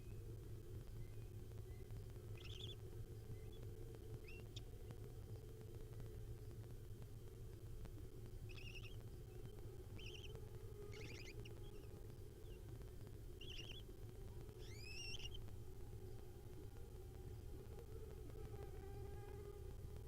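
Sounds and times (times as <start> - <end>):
low electrical hum: 0.0 - 20.0
owl nestlings chirping: 1.0 - 3.6, 4.2 - 4.6, 8.5 - 12.7, 13.3 - 13.9, 14.6 - 15.5.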